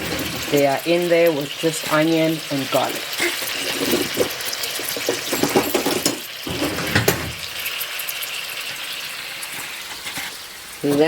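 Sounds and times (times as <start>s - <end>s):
clattering: 0.0s - 0.8s, 3.1s - 7.6s
crackles in a pot: 0.0s - 11.0s
mussels sizzling in a pot: 0.0s - 11.0s.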